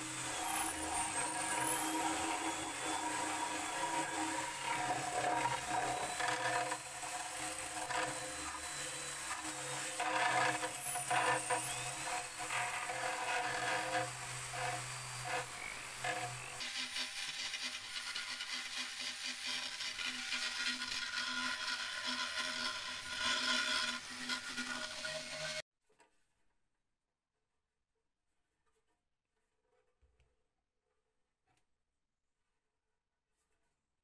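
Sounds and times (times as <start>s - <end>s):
grinding noise: 0.0s - 16.6s
power tool motor whine: 0.0s - 17.7s.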